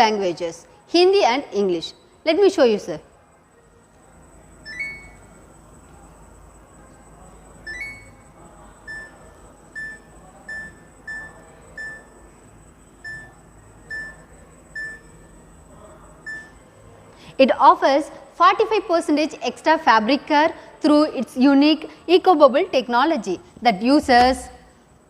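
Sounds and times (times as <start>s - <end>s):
control panel beeps: 4.6s - 5.3s, 7.6s - 12.2s, 13.0s - 15.3s, 16.2s - 16.6s.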